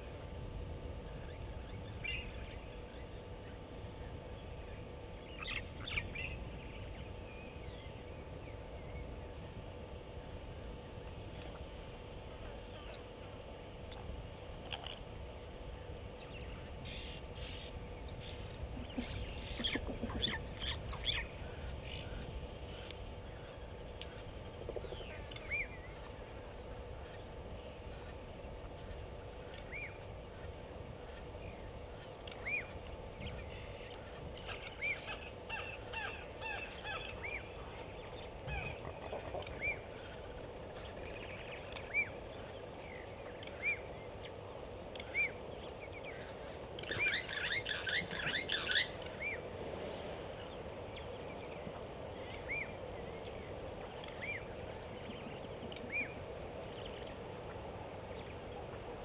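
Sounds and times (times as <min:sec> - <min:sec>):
steady background hiss: 0:00.0 - 0:59.0
birds calling: 0:01.0 - 0:59.0
rapid chattering bird calls: 0:16.8 - 0:25.7.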